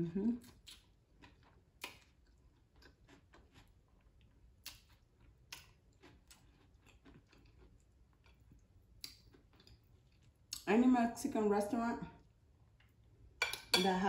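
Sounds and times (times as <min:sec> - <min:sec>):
person chewing: 0:00.4 - 0:10.6.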